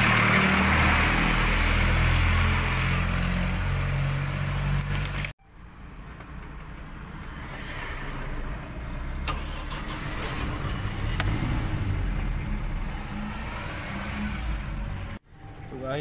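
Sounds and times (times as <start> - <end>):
car engine starting and idling: 8.3 - 15.6.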